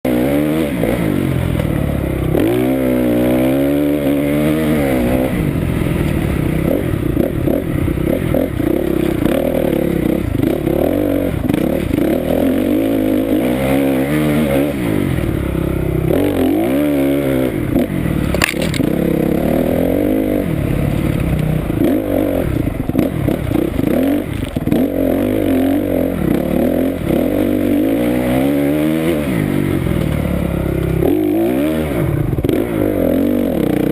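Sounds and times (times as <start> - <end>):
motorcycle engine revving: 0.1 - 33.9
sharp click: 18.3 - 18.9.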